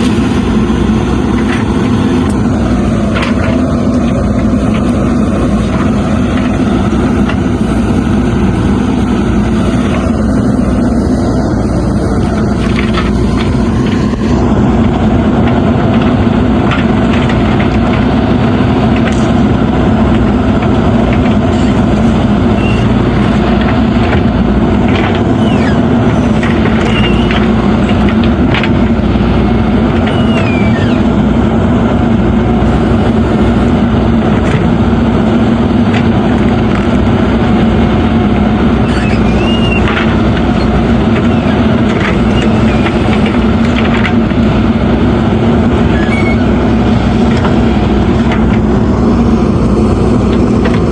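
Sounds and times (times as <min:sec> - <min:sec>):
diesel engine running: 0:00.0 - 0:50.9
short high squeaks: 0:21.4 - 0:23.5, 0:25.0 - 0:28.2, 0:29.9 - 0:31.2, 0:38.7 - 0:44.0, 0:45.8 - 0:48.6.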